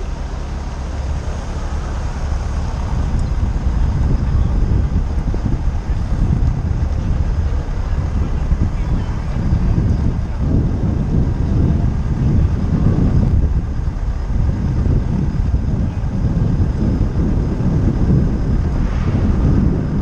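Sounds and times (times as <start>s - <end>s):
motorcycle engine idling: 0.0s - 18.7s
city traffic: 0.0s - 20.0s.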